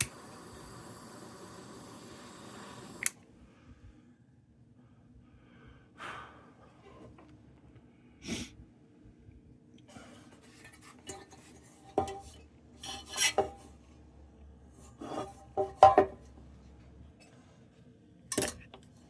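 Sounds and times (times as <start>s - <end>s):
light metal scraping: 10.0s - 14.0s, 14.7s - 17.6s
tools clanking on sheet metal: 10.6s - 13.7s, 18.3s - 18.7s.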